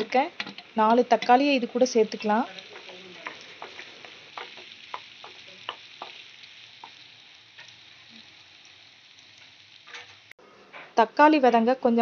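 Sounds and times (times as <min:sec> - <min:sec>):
wooden spatula scraping and tapping pan: 0:00.0 - 0:07.0
vegetables sizzling in oil: 0:00.0 - 0:10.4.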